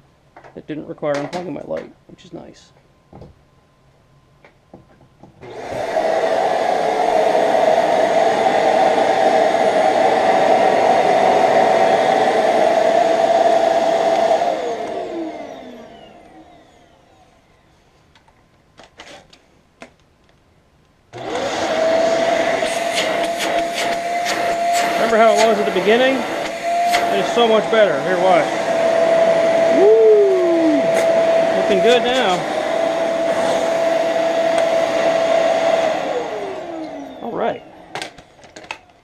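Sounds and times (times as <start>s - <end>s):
vacuum motor winding down: 5.4s - 17.7s, 21.2s - 38.2s
vacuum cleaner whine: 5.4s - 18.0s, 21.1s - 39.0s.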